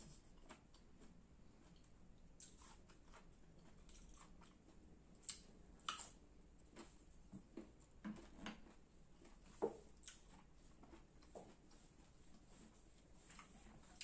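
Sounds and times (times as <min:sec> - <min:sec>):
crisp chewing crunches: 0:00.3 - 0:07.0.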